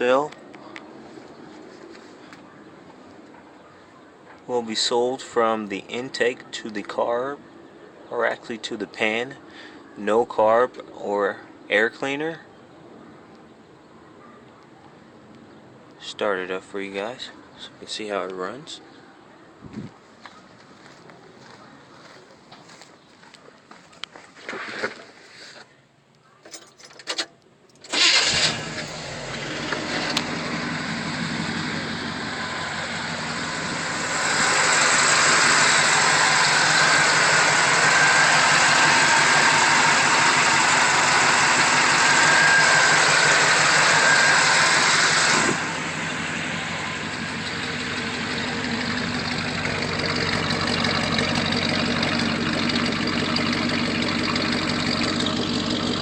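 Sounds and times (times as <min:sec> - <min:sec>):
car engine starting and revving: 0:27.9 - 0:56.0.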